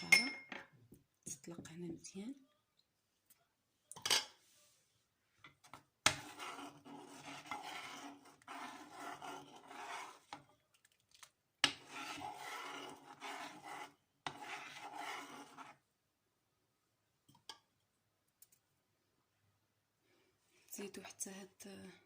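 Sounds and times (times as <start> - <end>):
scraping in a small vessel: 5.6 - 15.8.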